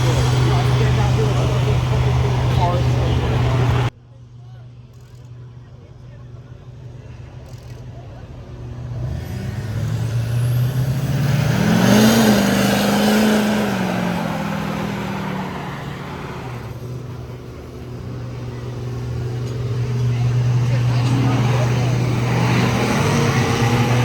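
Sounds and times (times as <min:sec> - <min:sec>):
engine idling: 0:00.0 - 0:03.9, 0:10.4 - 0:24.0
truck driving past: 0:00.0 - 0:03.9, 0:08.5 - 0:24.0.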